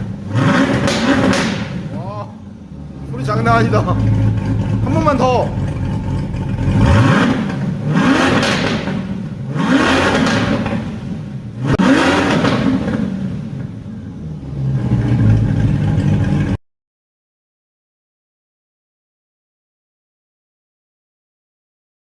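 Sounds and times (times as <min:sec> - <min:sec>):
car engine revving: 0:00.0 - 0:16.6.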